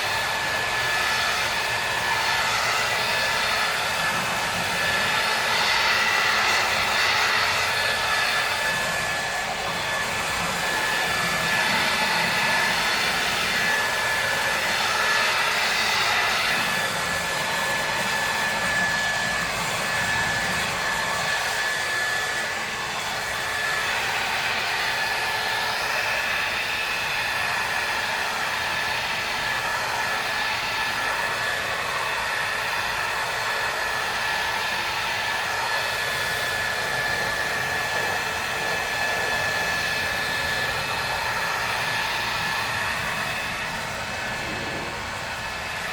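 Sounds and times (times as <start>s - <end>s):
pressure washer whine: 0.0s - 45.9s
pressure washer spray hissing: 41.7s - 45.9s.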